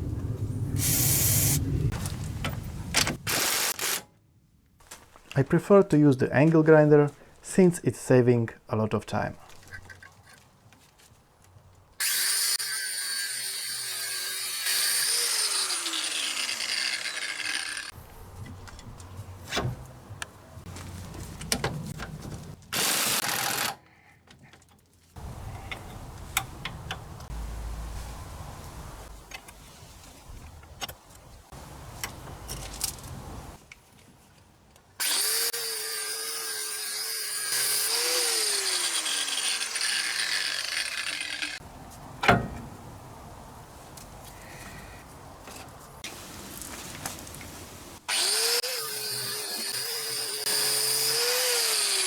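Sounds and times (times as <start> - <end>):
angle grinder: 12.0 - 18.0, 22.8 - 23.8, 35.0 - 41.6, 48.1 - 52.0.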